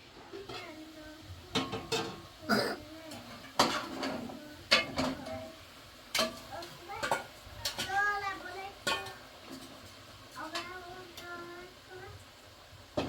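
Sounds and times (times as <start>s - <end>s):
dishes and utensils clattering: 1.5s - 5.5s, 6.1s - 8.0s, 8.8s - 9.8s.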